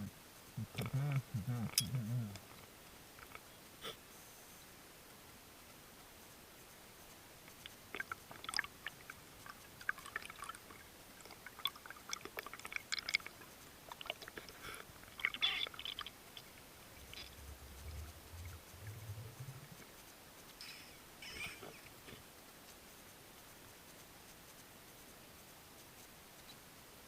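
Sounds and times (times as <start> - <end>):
underwater clicks and gurgles: 7.4 - 20.1
low rumble: 16.9 - 19.9.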